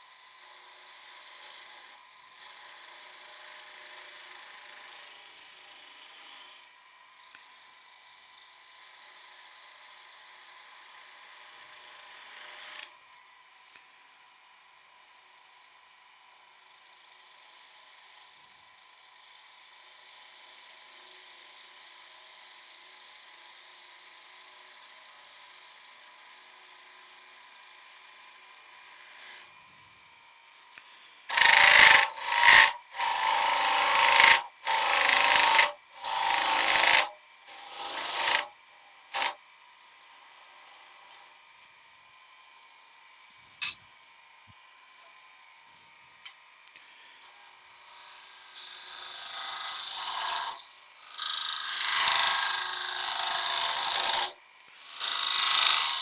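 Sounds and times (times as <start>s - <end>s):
tool cutting spinning wood: 0.0s - 13.1s, 17.0s - 56.0s
wood lathe hum: 0.0s - 56.0s.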